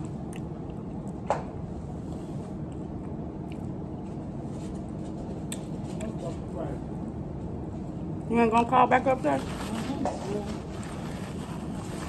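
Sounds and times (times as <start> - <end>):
person chewing food: 0.0 - 1.2, 2.6 - 4.0.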